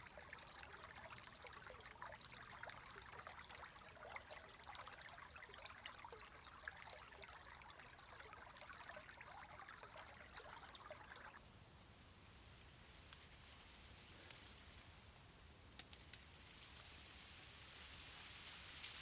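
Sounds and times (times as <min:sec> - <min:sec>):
stream trickling: 0:00.0 - 0:11.4
smooth water hiss: 0:16.4 - 0:19.0.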